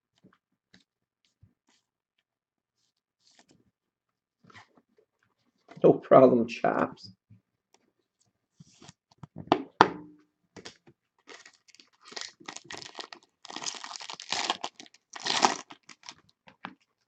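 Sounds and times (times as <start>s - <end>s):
wrapper crinkling and tearing: 11.2s - 16.3s.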